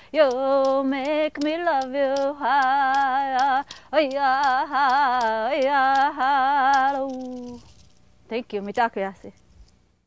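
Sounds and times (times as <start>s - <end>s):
light ticks keeping a beat: 0.0s - 7.6s
woman singing with vibrato: 0.0s - 7.7s.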